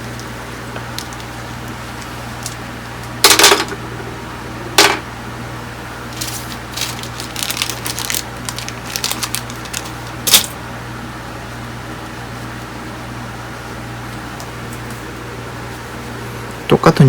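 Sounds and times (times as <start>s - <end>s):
steady low hum: 0.0s - 17.0s
small items clicking and rattling: 6.2s - 10.6s.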